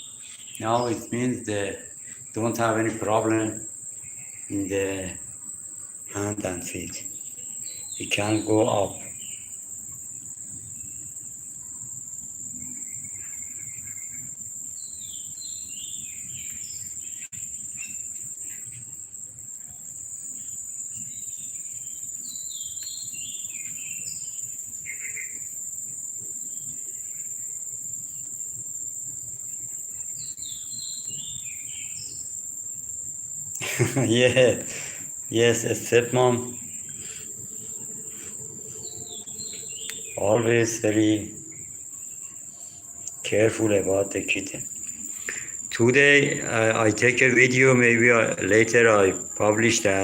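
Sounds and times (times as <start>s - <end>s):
insects droning: 0.0s - 50.0s
bird singing falling notes: 38.7s - 41.8s.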